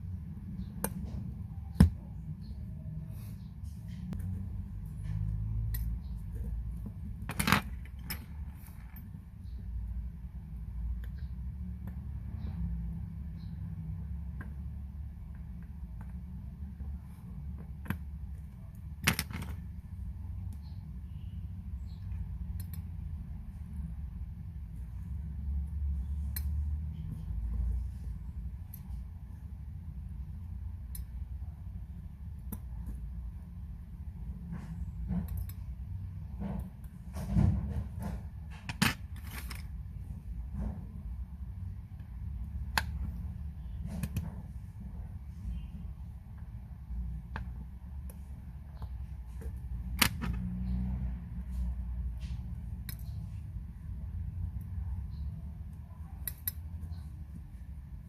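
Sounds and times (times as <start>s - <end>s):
steady low hum: 0.0s - 58.0s
small metal tool clicks: 22.5s - 22.9s, 56.2s - 56.7s.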